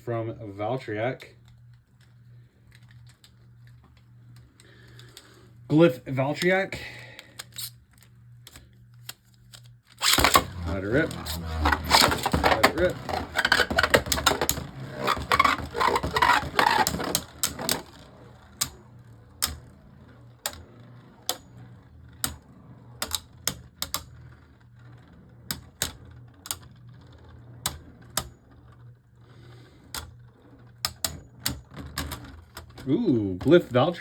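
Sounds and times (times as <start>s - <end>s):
faint low whir of spinning: 0.0s - 34.0s
spinning tops colliding clicks: 7.4s - 28.8s
spinning tops clattering: 10.0s - 24.0s.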